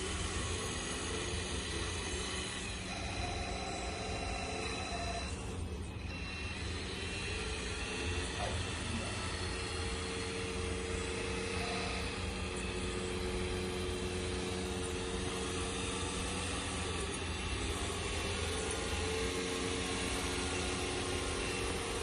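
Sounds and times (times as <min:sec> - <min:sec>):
model tractor motor hum: 0:00.0 - 0:22.0
whining motor tone: 0:00.0 - 0:22.0.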